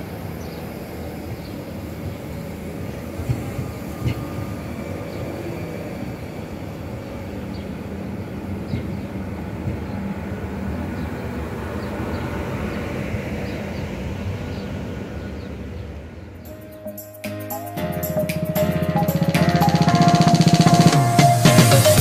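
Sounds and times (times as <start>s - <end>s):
train running noise with hum: 0.0s - 16.8s.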